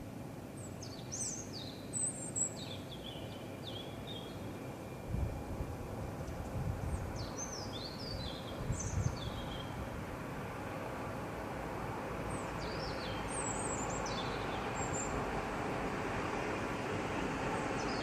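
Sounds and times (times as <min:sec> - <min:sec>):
steady background hiss: 0:00.0 - 0:18.0
songbird singing: 0:00.5 - 0:05.3, 0:06.2 - 0:10.0, 0:12.2 - 0:15.4, 0:17.2 - 0:18.0.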